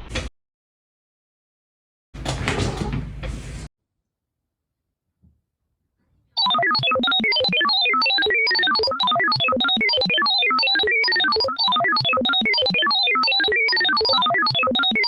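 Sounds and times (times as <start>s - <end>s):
fast electronic keyboard melody: 6.4s - 15.0s.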